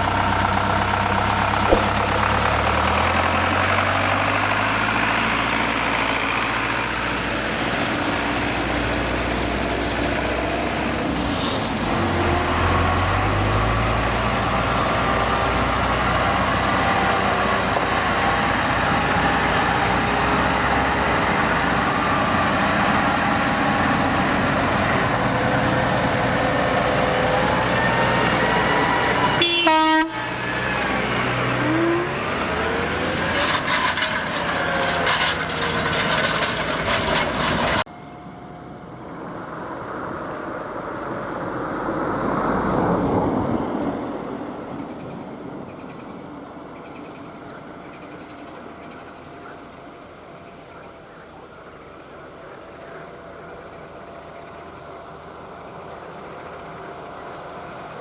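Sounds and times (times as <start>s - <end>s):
tractor engines running: 0.0s - 58.0s
tractor passing: 0.0s - 58.0s
short sharp pitched sound: 1.7s - 2.4s.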